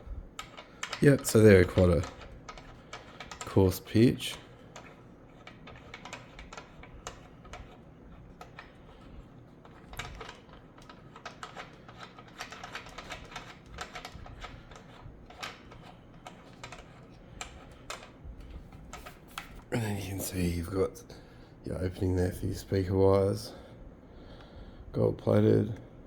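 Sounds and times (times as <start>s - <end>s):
light clicks and taps: 0.4s - 3.6s, 4.3s - 19.7s.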